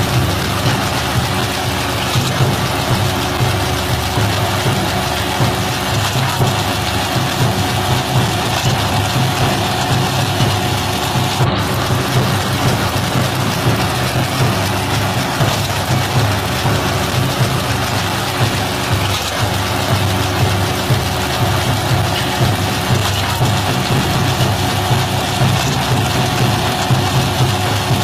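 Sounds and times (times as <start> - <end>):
combine harvester engine running: 0.0 - 28.0.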